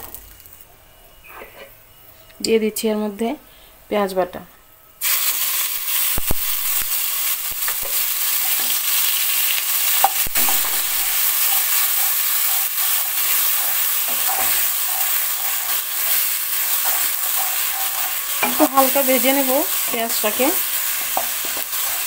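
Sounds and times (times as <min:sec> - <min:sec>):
paste sizzling in hot oil: 0:05.0 - 0:22.0.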